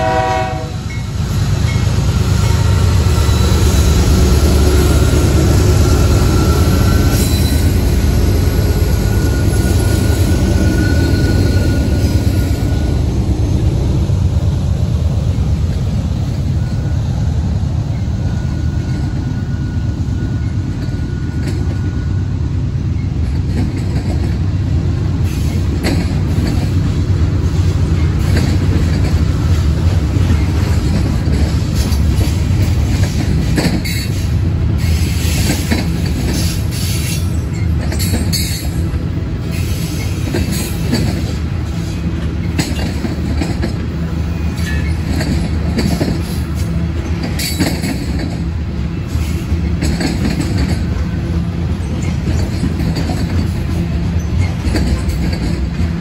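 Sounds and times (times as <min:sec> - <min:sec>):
diesel locomotive engine rumble: 0:00.0 - 0:56.0
thin wheel squeal: 0:08.7 - 0:12.9
wheels rolling on rails: 0:49.2 - 0:56.0.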